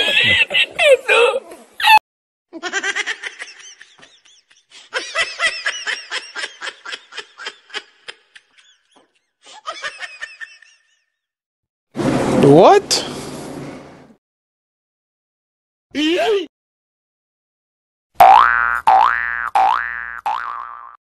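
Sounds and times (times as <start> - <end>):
high-pitched cackling laughter: 0.0 - 2.0, 2.6 - 8.9, 9.5 - 11.0.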